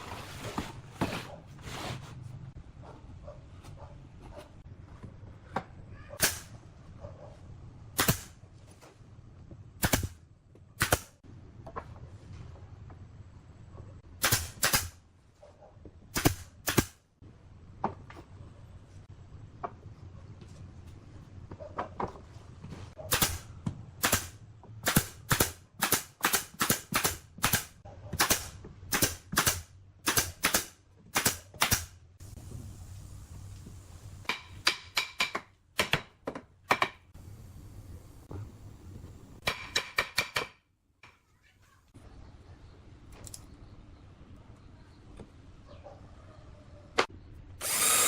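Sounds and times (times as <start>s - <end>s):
nails driven into wood: 9.8s - 10.2s, 14.2s - 15.0s, 16.1s - 17.0s, 23.1s - 31.9s, 47.6s - 48.0s.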